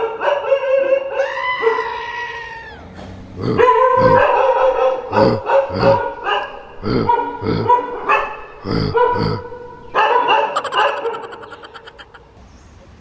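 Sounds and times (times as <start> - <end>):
dog barking: 0.0 - 2.0, 3.2 - 11.4.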